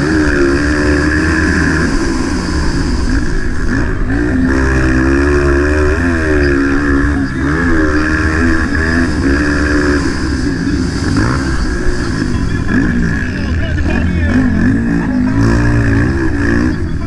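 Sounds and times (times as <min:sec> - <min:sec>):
motorcycle engine revving: 0:00.0 - 0:17.0
steady rushing noise: 0:00.0 - 0:17.0.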